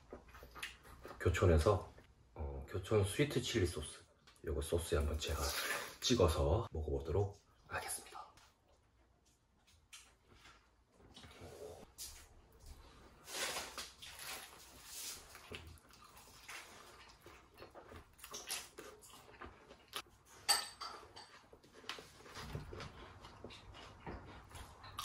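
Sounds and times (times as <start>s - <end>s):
man chewing crunchy food: 0.0s - 1.2s, 12.6s - 25.0s.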